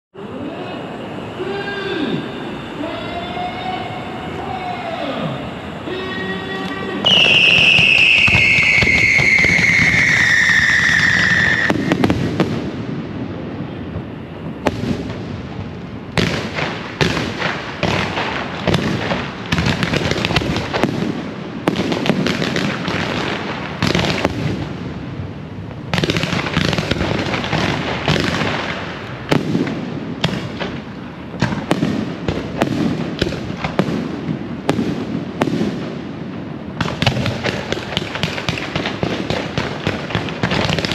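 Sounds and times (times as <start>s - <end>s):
firework whistle falling: 1.0s - 12.4s
firecrackers crackling and popping: 6.5s - 40.9s.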